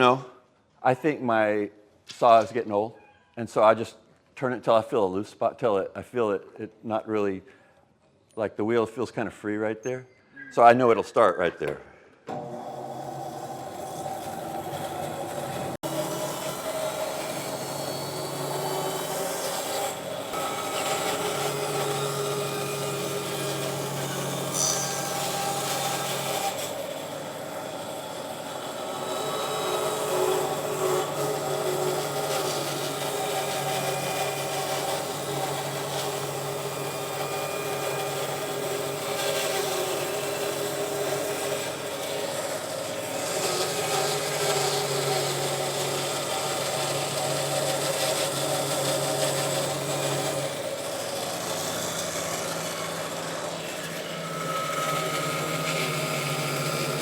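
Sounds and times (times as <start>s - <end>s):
bandsaw cutting wood: 12.3s - 57.0s.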